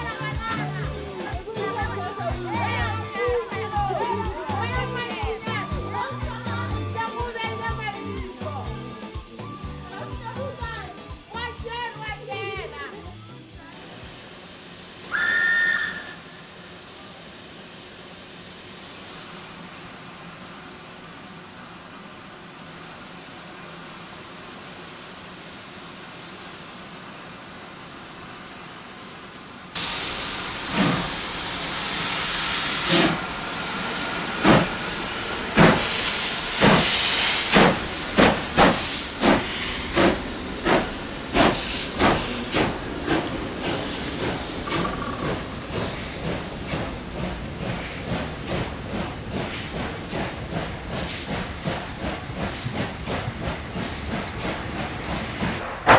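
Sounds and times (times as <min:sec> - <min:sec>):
locomotive exhaust beats: 0:00.0 - 0:28.5, 0:29.8 - 0:55.9
steam hissing: 0:00.0 - 0:55.9
steam locomotive whistle: 0:14.9 - 0:17.5, 0:29.8 - 0:40.1.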